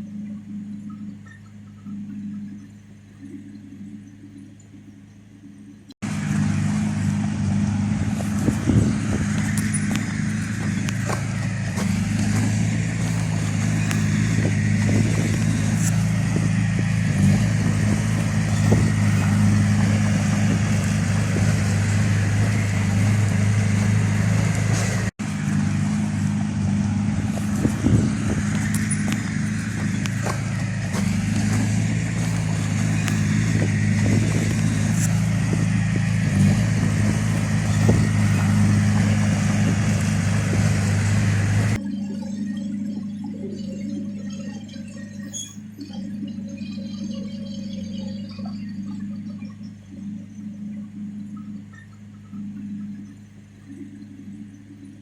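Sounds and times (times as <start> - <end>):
diesel engine running under load: 0.0 - 55.0
knocks and clanks: 27.2 - 41.8.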